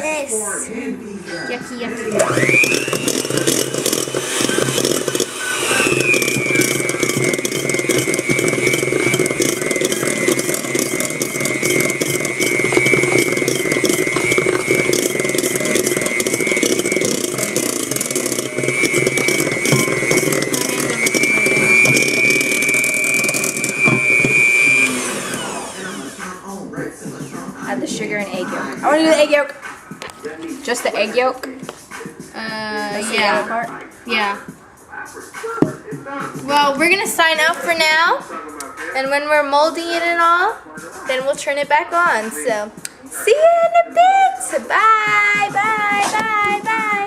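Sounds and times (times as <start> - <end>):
mixer motor whining: 1.9 - 28.1.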